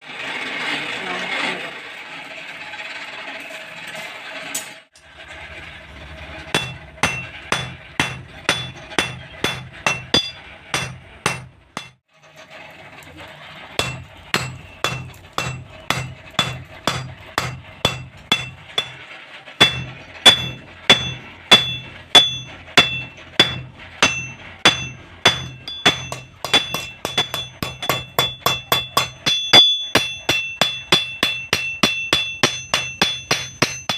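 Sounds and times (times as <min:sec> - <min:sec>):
hammer striking steel on anvil: 0:06.5 - 0:12.0, 0:13.8 - 0:19.0, 0:19.6 - 0:33.9.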